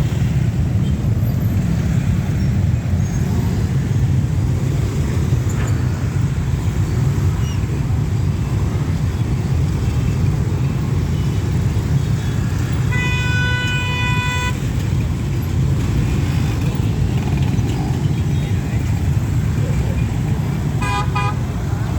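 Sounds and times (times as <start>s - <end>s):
road traffic rumble: 0.0s - 21.9s
car horn honk: 12.8s - 14.7s, 20.7s - 21.7s.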